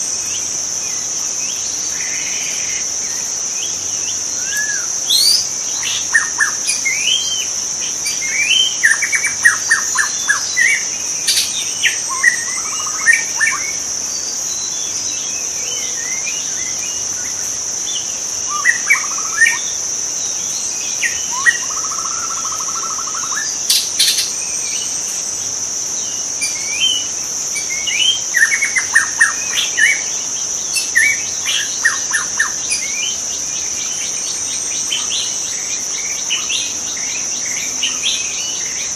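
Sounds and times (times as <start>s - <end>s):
high-pitched insect drone: 0.0s - 38.9s
bird singing whistles and trills: 4.4s - 19.7s, 20.8s - 24.9s, 26.4s - 33.2s.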